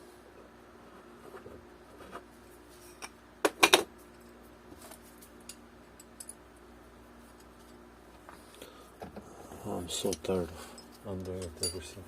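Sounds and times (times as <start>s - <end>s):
tools clicking and clinking: 10.0s - 11.9s.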